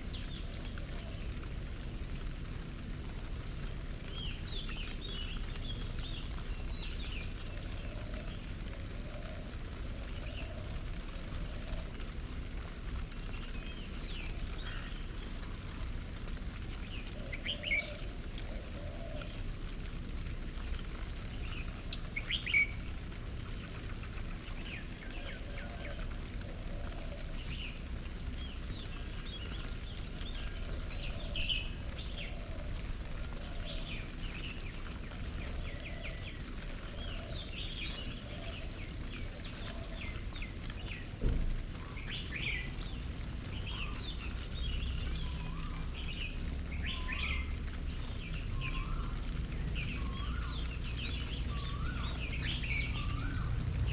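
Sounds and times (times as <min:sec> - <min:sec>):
low background rumble: 0:00.0 - 0:53.9
birds chirping: 0:12.9 - 0:19.8, 0:20.4 - 0:53.9
thump: 0:41.2 - 0:41.6.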